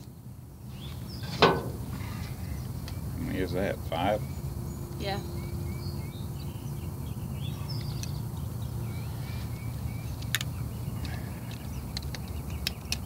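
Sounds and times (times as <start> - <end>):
low outdoor rumble: 0.0 - 13.0
small birds chirping: 0.0 - 13.0.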